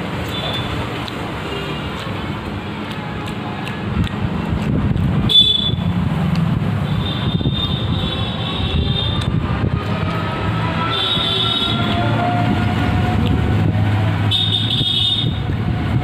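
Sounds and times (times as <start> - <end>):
vehicle passing with low rumble: 2.2 - 14.4.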